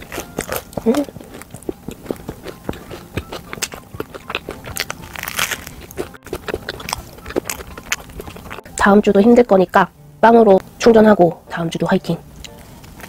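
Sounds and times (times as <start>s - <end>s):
chewing and mouth clicks: 0.0s - 8.7s.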